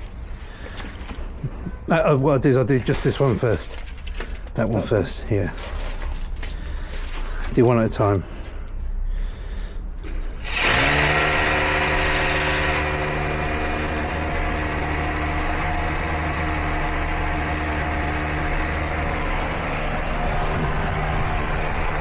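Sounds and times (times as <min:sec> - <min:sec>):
hammer drill drilling into concrete: 0:10.3 - 0:22.0.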